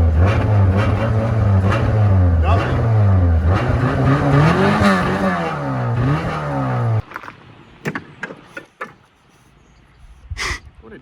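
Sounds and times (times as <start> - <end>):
car engine revving: 0.0 - 7.1.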